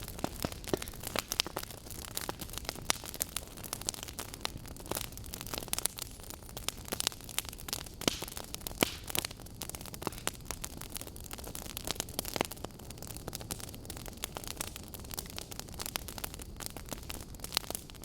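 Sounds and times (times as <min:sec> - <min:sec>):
burning logs crackling: 0:00.0 - 0:18.0
low rumble of fire: 0:00.0 - 0:18.0.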